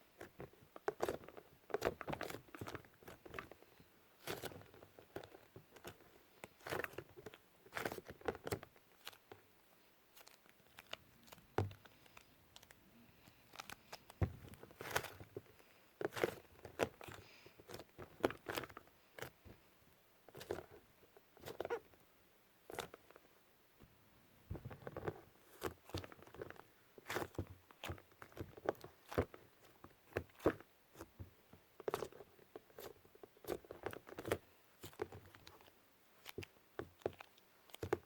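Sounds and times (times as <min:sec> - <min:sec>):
hands squishing modelling clay: 0:00.0 - 0:38.0
clay tearing: 0:00.2 - 0:09.4, 0:10.1 - 0:19.5, 0:24.5 - 0:31.2.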